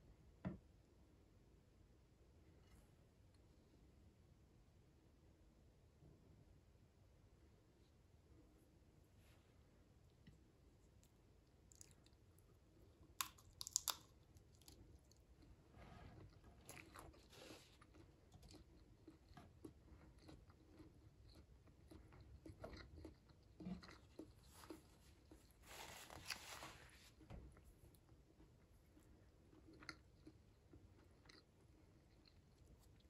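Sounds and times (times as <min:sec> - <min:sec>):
close chewing mouth sounds: 0:16.2 - 0:25.6, 0:28.3 - 0:33.0.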